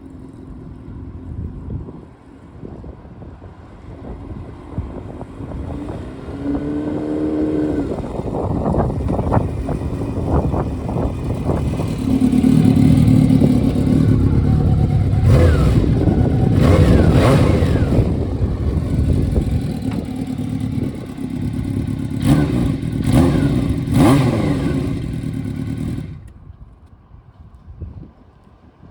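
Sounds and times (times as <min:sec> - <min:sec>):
wind noise: 0:00.0 - 0:28.9
motorcycle engine revving: 0:05.4 - 0:26.3.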